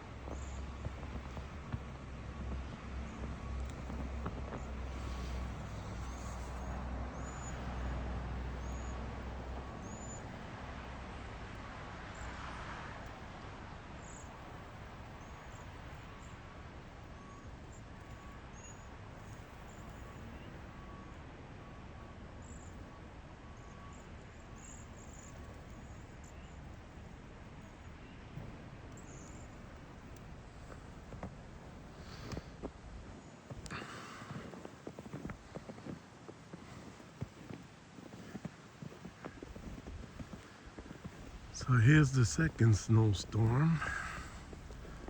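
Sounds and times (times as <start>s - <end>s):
steady outdoor hiss: 25.7s - 45.0s.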